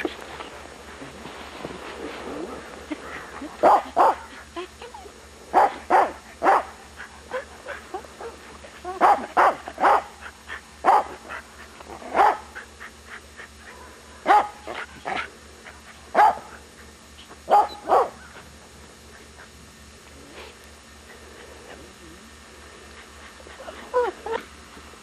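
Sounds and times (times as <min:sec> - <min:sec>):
dog barking: 0:09.0 - 0:10.1, 0:12.2 - 0:12.4, 0:13.7 - 0:14.6, 0:16.2 - 0:16.5, 0:17.5 - 0:18.2.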